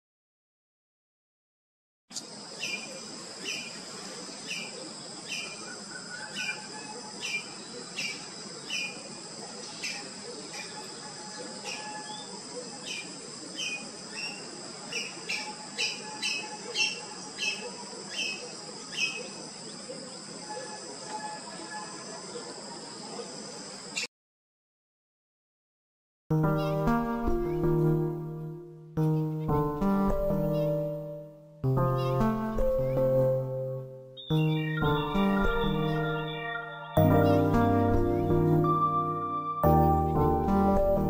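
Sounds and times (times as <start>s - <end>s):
bird chirping: 2.1s - 23.3s, 30.3s - 31.0s, 31.8s - 33.3s, 34.1s - 38.8s.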